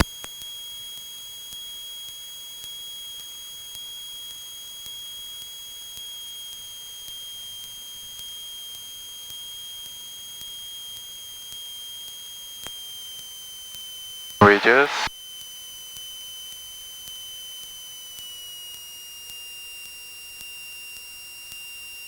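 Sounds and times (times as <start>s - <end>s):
low intercom hiss: 14.4s - 15.1s.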